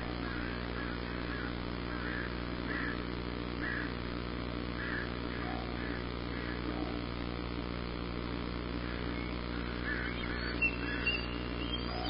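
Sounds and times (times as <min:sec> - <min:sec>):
steady low hum: 0:00.0 - 0:12.0
bird giving short calls: 0:08.9 - 0:12.0.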